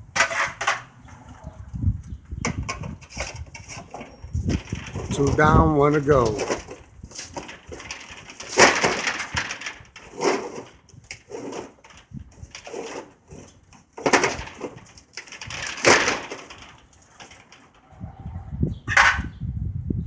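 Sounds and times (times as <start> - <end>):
scraping on metal spring hardware: 3.0 - 17.7.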